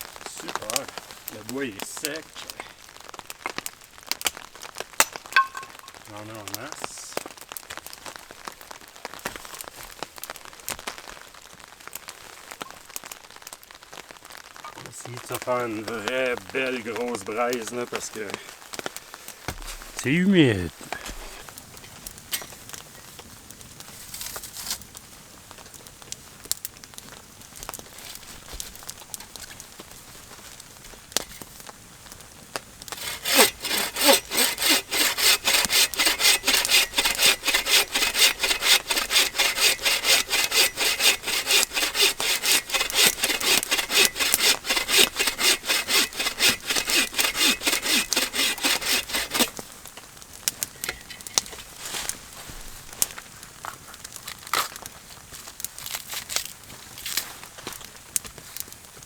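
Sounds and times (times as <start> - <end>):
hand saw cutting a branch: 0.4 - 2.2, 19.5 - 21.5, 32.9 - 49.7
small knocks: 5.0 - 6.0, 19.4 - 20.0.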